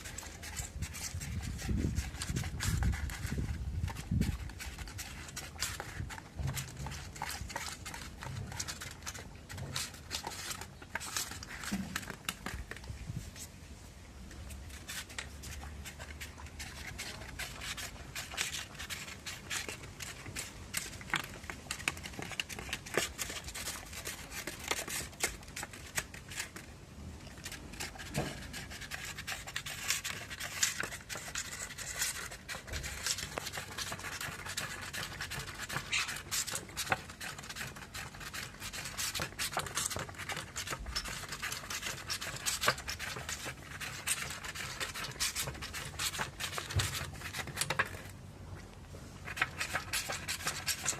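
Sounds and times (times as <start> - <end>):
dog licking and eating: 0.0 - 12.8.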